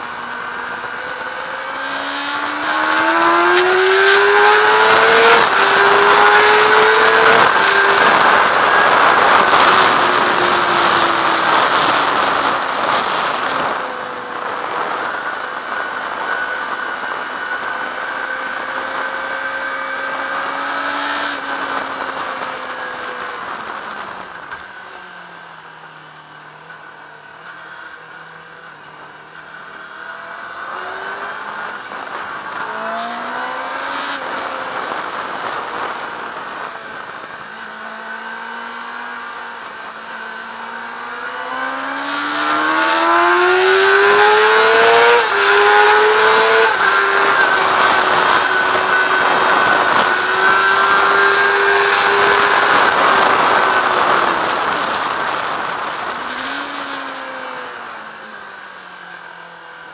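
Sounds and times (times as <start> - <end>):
motorcycle engine revving: 0.0 - 59.9
wind rush: 0.8 - 24.6, 41.4 - 57.8.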